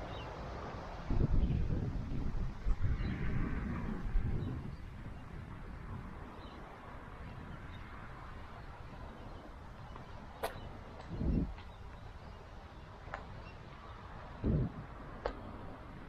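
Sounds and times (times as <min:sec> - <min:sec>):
wind buffeting microphone: 0:00.0 - 0:16.0
sharp click: 0:10.4 - 0:10.6.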